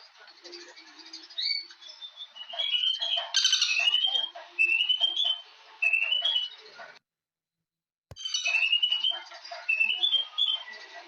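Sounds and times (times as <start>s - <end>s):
bird singing whistled phrases: 8.2s - 10.7s.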